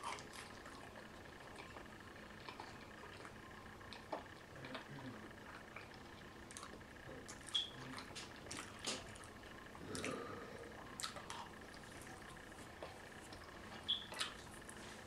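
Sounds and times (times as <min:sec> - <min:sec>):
person chewing: 0:00.0 - 0:01.8, 0:02.4 - 0:15.0
wet lip smacks: 0:13.9 - 0:14.5.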